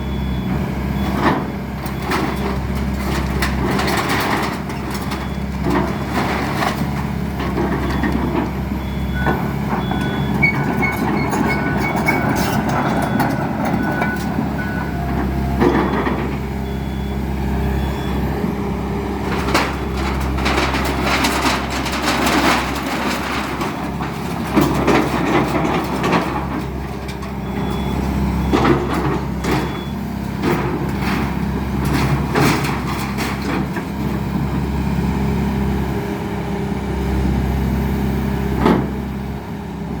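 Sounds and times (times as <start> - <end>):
excavator engine running: 0.0 - 33.2
beeping alarm: 7.8 - 18.5
demolition debris crashing: 9.8 - 17.1, 19.1 - 33.9.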